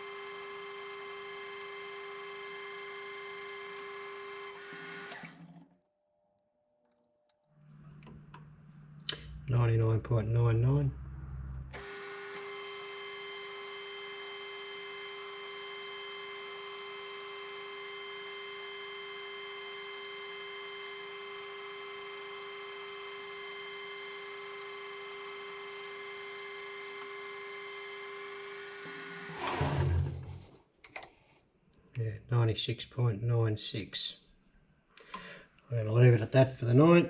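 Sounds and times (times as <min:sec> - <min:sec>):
metal lathe cutting whine: 0:11.8 - 0:25.2.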